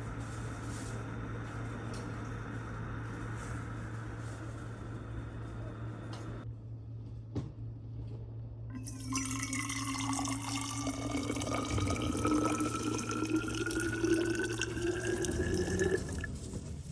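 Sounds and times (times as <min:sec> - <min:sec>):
water pouring into a container: 0:08.8 - 0:16.5.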